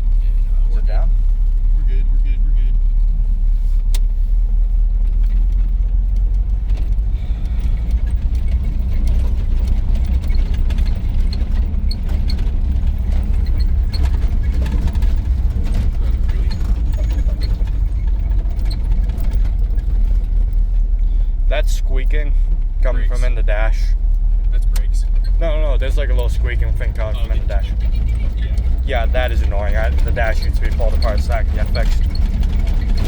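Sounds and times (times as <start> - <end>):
engine and road rumble: 0.0 - 33.0
small squeaks and ticks: 5.1 - 20.7, 26.3 - 33.0.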